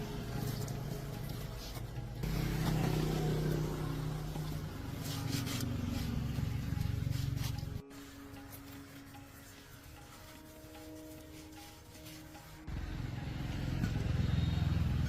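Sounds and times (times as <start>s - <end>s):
vehicle engine running: 0.0s - 7.8s, 12.7s - 15.0s.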